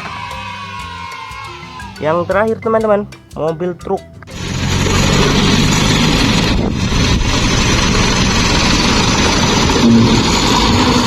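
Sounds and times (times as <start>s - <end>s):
truck engine running: 4.3s - 11.0s.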